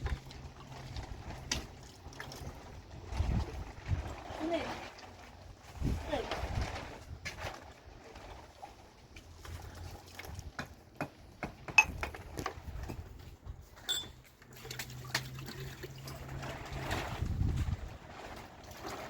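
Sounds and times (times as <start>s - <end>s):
water trickling: 12.6s - 19.0s.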